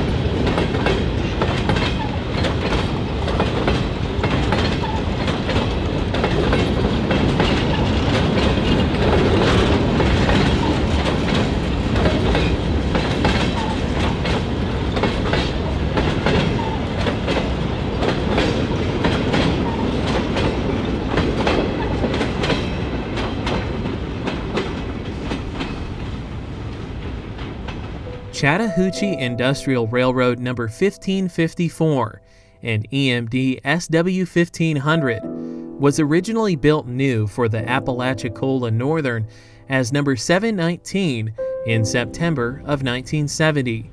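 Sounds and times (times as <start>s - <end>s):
train wheels clicking over rail joints: 0.0s - 28.0s.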